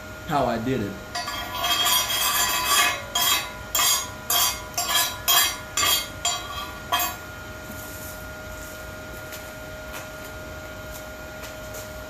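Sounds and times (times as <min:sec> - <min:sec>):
metal clinking: 0:01.2 - 0:07.2.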